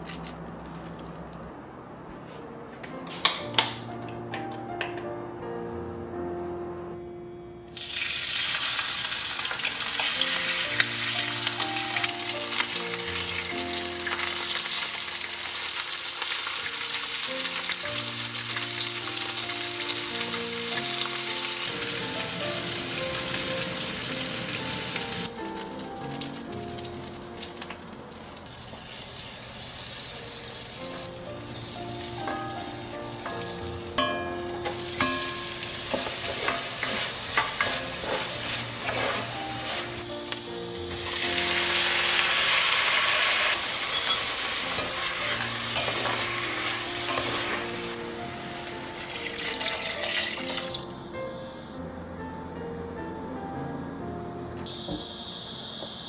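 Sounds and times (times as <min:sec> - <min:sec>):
soft background music: 0:01.8 - 0:29.0, 0:29.6 - 0:56.0
food sizzling in a pan: 0:07.7 - 0:51.1.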